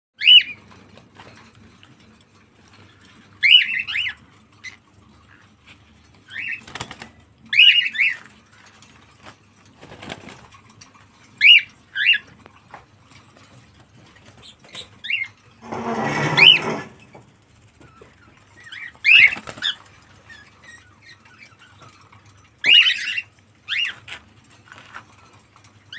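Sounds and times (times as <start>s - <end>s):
cockatiel chirping: 0.2s - 0.6s
rustling: 12.6s - 17.3s.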